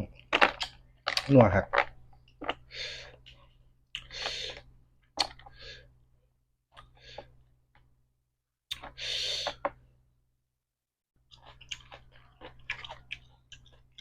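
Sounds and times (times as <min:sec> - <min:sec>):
wet chewing and lip smacks: 0:11.3 - 0:14.0.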